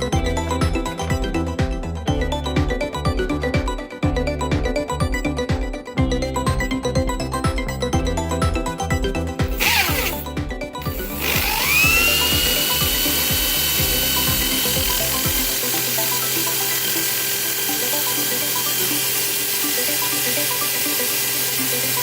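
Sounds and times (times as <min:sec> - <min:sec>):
background music: 0:00.0 - 0:22.0
hammer drill whining: 0:09.5 - 0:22.0.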